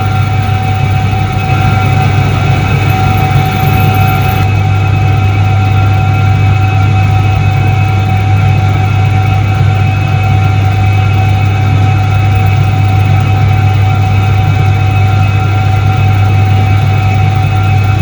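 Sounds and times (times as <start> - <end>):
washing machine motor humming: 0.0 - 4.8, 11.7 - 18.0.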